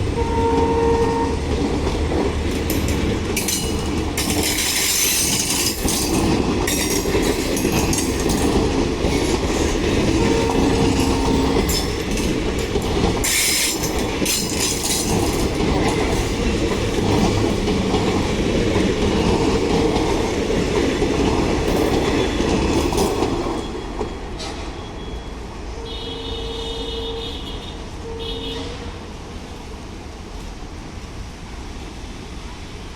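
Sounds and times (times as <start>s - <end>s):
train horn: 0.0s - 1.6s, 10.0s - 11.8s, 25.7s - 29.1s
train wheels clattering: 0.0s - 24.8s.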